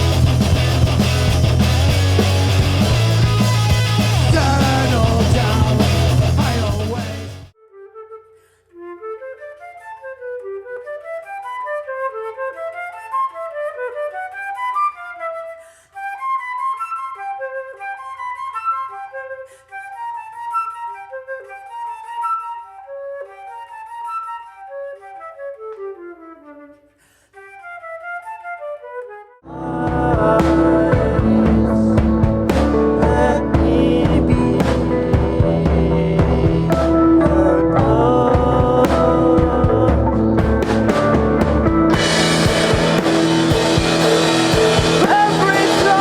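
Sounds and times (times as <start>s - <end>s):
solo flute melody: 7.5s - 34.4s.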